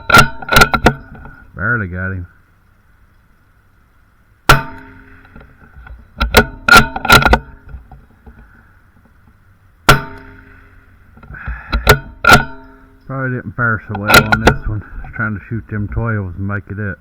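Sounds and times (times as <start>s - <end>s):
metallic clicks of rifle action: 0.0s - 1.4s, 4.7s - 10.4s, 13.9s - 15.2s
rifle shot: 4.5s - 5.2s, 9.9s - 10.6s.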